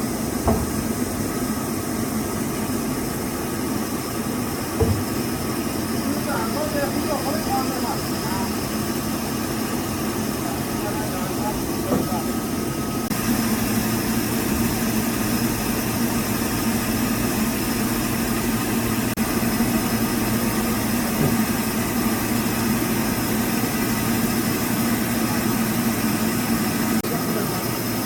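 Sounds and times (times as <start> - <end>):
sawmill machinery drone: 0.0 - 28.0.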